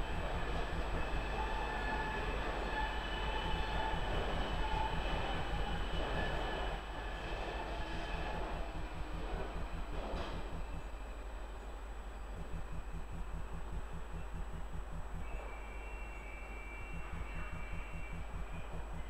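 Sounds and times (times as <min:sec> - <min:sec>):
faint high tones: 0:12.3 - 0:19.0.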